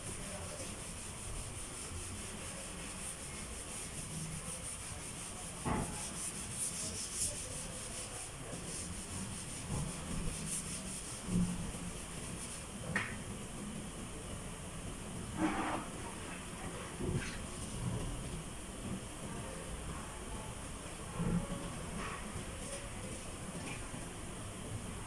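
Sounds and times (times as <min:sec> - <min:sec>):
sanding rasp on door panel: 0:00.0 - 0:12.7.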